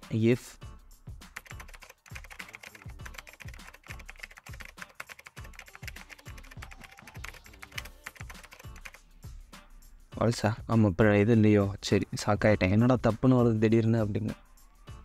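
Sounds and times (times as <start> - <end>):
typing on computer keyboard: 1.4 - 9.0.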